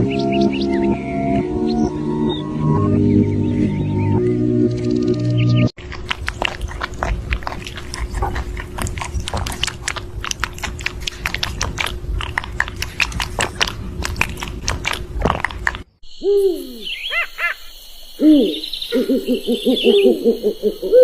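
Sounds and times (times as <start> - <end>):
crunchy chewing: 5.8 - 15.9.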